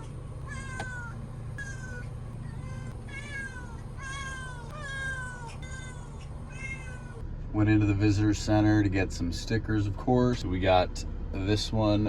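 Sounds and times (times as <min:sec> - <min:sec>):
cat meowing: 0:00.0 - 0:07.2
steady low hum: 0:00.0 - 0:12.0.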